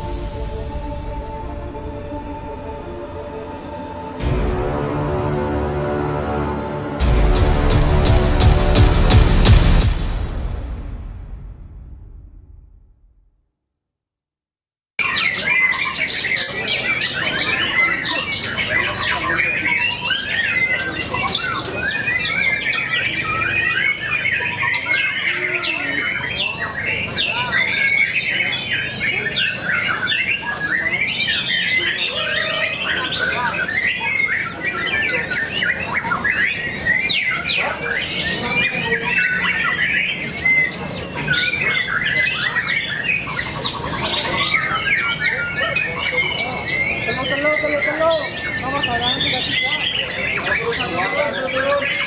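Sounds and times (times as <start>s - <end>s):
caged songbirds singing: 15.0s - 52.0s.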